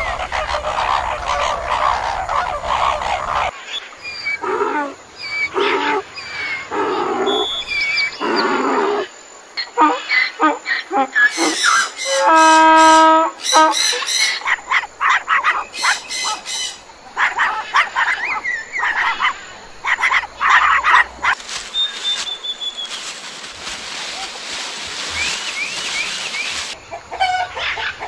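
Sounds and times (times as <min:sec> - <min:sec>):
dog barking: 0:17.2 - 0:18.2.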